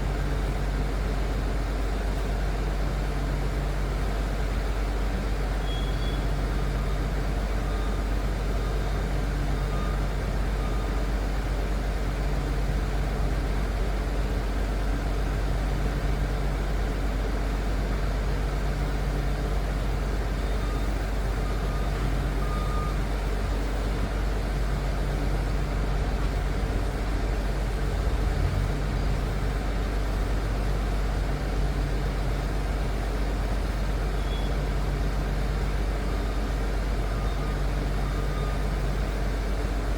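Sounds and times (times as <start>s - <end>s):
dozer diesel engine droning: 18.8s - 39.9s.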